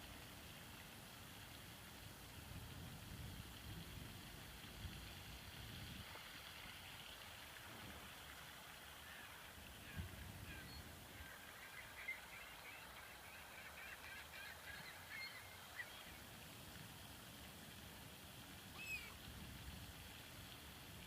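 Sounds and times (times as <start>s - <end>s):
distant water birds calling: 7.5s - 17.1s, 18.4s - 19.7s.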